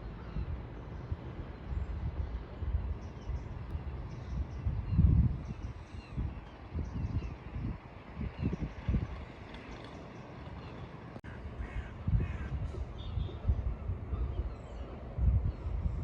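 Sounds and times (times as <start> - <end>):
wind gusting on microphone: 0.0 - 16.0
birds cawing faintly: 8.2 - 16.0.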